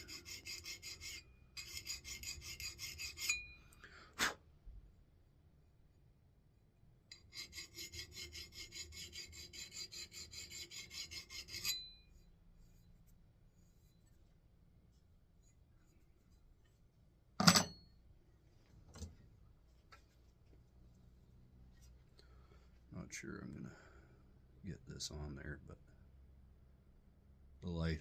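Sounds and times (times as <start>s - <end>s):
file rasping on axe edge: 0.0s - 3.5s, 7.2s - 12.0s.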